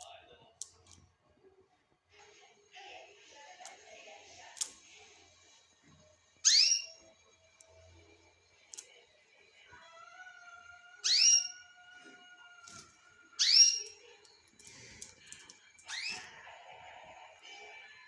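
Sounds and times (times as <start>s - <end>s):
soft bird chattering: 6.4s - 7.0s, 13.4s - 14.0s
shrill bird chirps: 6.4s - 7.2s, 10.9s - 11.9s, 13.3s - 14.0s, 15.8s - 16.4s.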